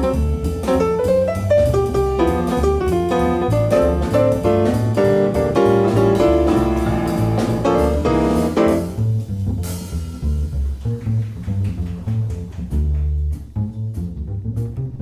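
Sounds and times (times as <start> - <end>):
drums and cymbal wash: 0.0 - 9.0
jazz melody line: 0.0 - 11.2
double bass: 0.0 - 15.0.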